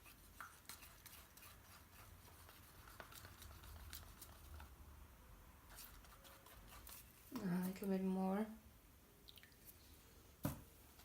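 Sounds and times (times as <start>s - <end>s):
stick stirring paint in a cup: 0.0s - 4.8s, 5.6s - 8.1s.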